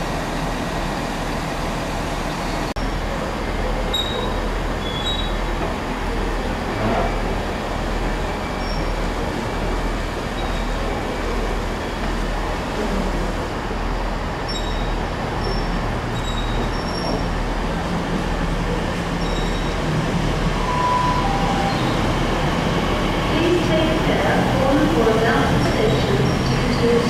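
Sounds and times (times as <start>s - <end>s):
train wheels rumbling: 0.0s - 27.0s
short beep: 20.6s - 22.0s.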